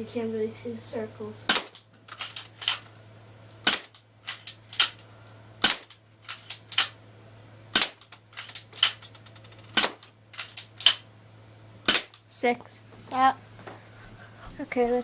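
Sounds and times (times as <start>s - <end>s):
airsoft gun shots cracking: 1.5s - 2.8s, 3.6s - 5.0s, 5.6s - 7.0s, 7.7s - 9.0s, 9.7s - 11.0s, 11.8s - 12.2s.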